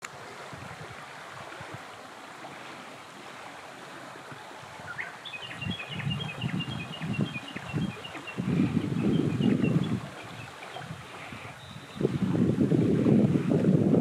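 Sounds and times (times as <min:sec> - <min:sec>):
stream water flowing: 0:00.0 - 0:14.0
wind buffeting microphone: 0:00.1 - 0:02.7, 0:04.3 - 0:14.0
bird chirping: 0:04.9 - 0:08.4, 0:11.6 - 0:12.0.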